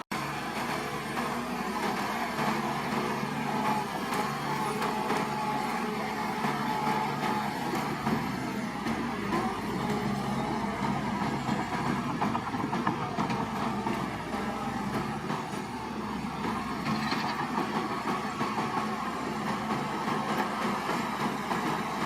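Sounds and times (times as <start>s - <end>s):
bulldozer diesel engine running: 0.1s - 22.0s
metallic clatter: 16.8s - 17.6s.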